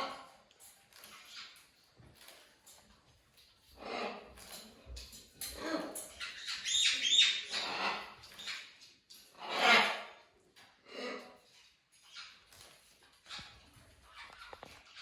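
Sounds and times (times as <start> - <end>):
parrot calling: 5.6 - 8.6, 9.4 - 10.2.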